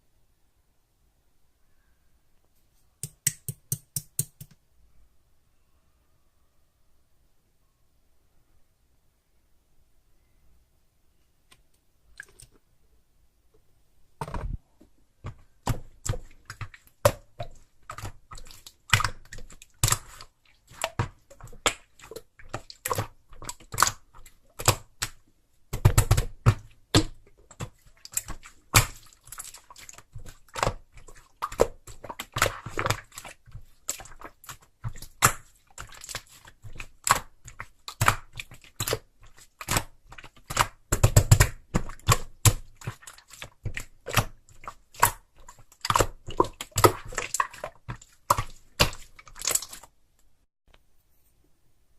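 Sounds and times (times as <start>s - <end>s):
small objects clicking and tapping: 3.0s - 4.6s.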